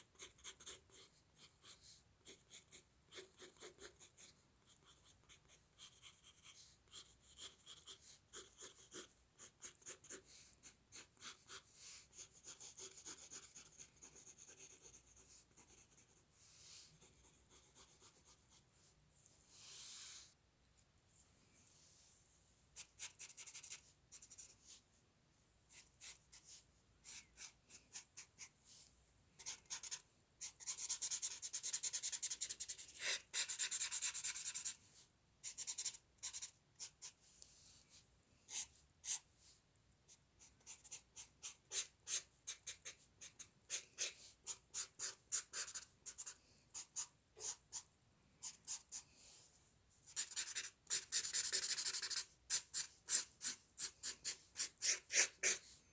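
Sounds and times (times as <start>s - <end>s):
pencil drawing on paper: 0.0s - 18.7s, 22.8s - 24.8s, 25.7s - 28.5s, 29.4s - 37.2s, 37.9s - 39.5s, 40.4s - 49.1s, 50.1s - 55.8s.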